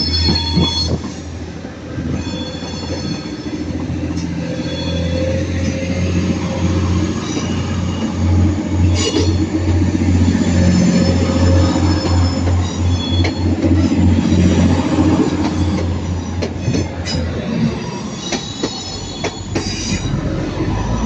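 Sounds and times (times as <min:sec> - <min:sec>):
low train rumble: 0:00.0 - 0:21.0
train wheels squealing on rails: 0:00.0 - 0:21.0.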